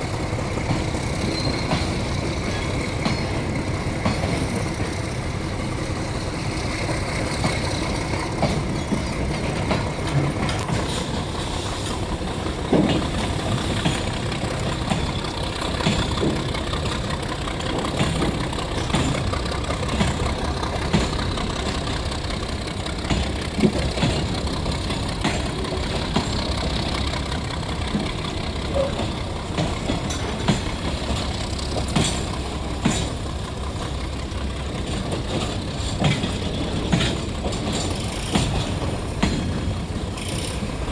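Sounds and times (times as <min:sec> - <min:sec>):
locomotive engine running: 0:00.0 - 0:40.9
clanks and knocks: 0:23.0 - 0:34.0.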